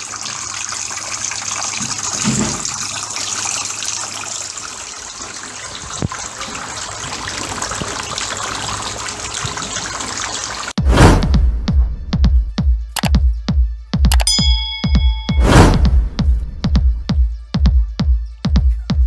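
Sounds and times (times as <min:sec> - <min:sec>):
water fountain trickling: 0:00.0 - 0:10.8.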